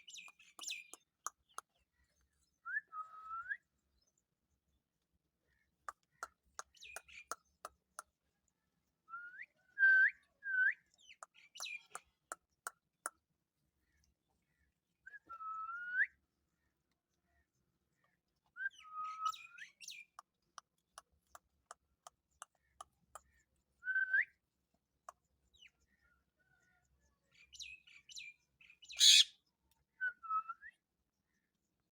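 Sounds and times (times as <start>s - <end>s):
parrot harsh squawk: 29.0s - 29.3s
parrot whistled calls: 29.0s - 29.3s.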